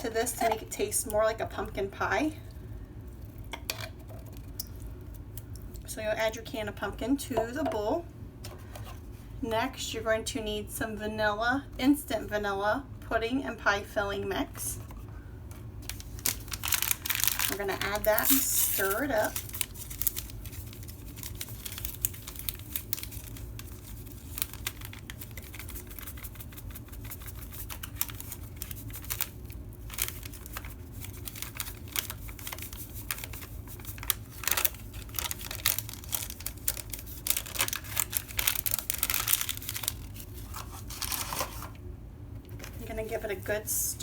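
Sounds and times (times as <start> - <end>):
packaging crinkling and tearing: 15.8 - 41.8.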